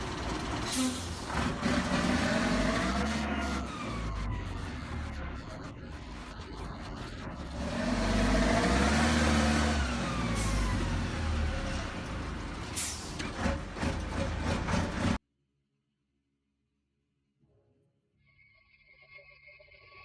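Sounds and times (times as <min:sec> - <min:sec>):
truck diesel engine revving: 0:00.0 - 0:15.2.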